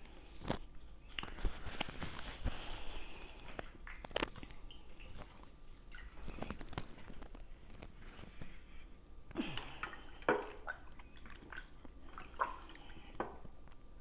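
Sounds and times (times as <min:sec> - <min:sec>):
sharp wet clicks: 0:01.0 - 0:01.4, 0:03.5 - 0:07.4
lip smacks: 0:01.0 - 0:01.6
squelching chewing: 0:09.6 - 0:13.8.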